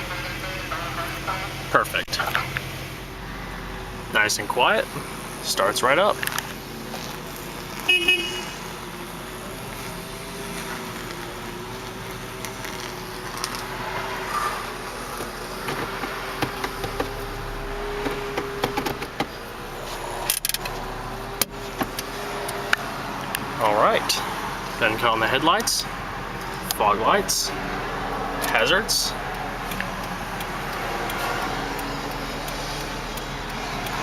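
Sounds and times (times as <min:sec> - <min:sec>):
car engine idling: 0:00.0 - 0:34.0
sharp clicks: 0:29.3 - 0:34.0.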